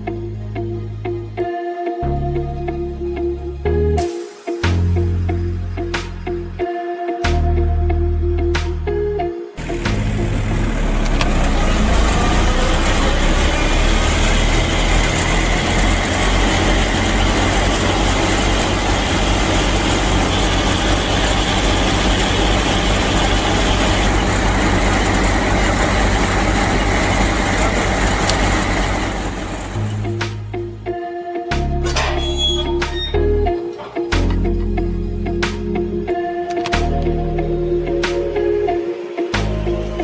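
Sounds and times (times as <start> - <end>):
mini tractor engine running: 9.6 - 30.0.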